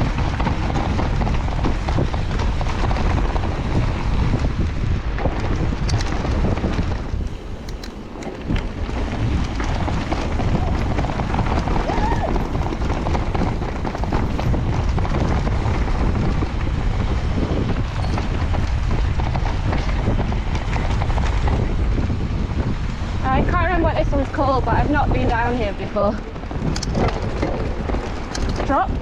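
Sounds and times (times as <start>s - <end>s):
bike rattling and clicking: 0.0s - 29.0s
wind buffeting microphone: 0.0s - 29.0s.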